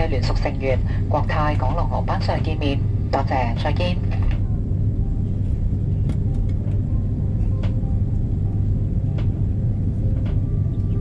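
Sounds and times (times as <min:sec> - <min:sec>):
aircraft cabin engine rumble: 0:00.0 - 0:11.0
constant hum: 0:00.0 - 0:11.0.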